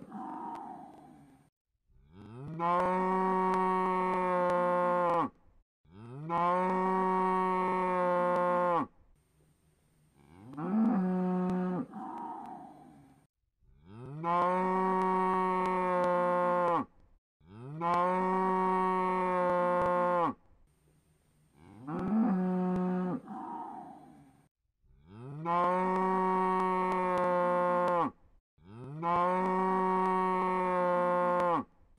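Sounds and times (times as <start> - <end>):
cow mooing: 0.0 - 1.3, 2.1 - 5.3, 5.9 - 8.9, 10.2 - 13.0, 13.8 - 16.9, 17.5 - 20.4, 21.6 - 24.2, 25.1 - 31.7.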